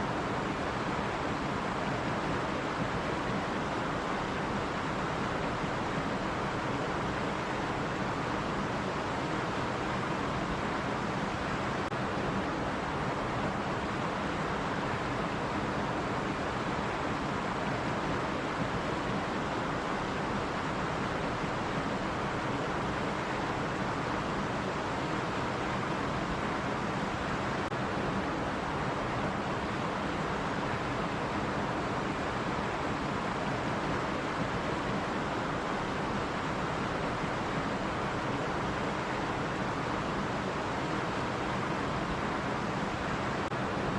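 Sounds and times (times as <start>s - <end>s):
stream water over rocks: 0.0s - 43.9s.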